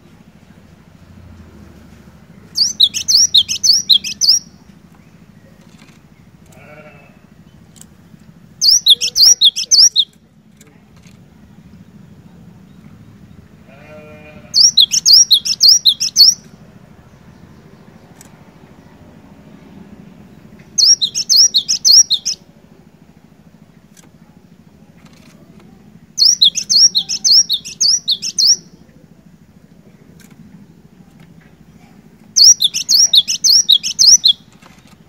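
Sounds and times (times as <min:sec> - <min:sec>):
faint low hum: 0:00.0 - 0:35.0
bird singing high notes: 0:02.6 - 0:04.5, 0:08.6 - 0:10.1, 0:14.6 - 0:16.4, 0:20.8 - 0:22.4, 0:26.2 - 0:28.7, 0:32.4 - 0:34.4.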